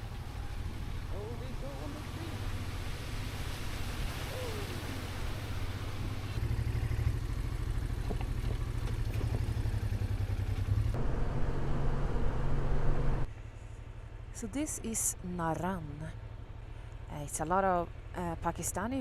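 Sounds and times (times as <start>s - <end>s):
motorcycle engine running: 5.8s - 15.1s, 15.8s - 17.1s.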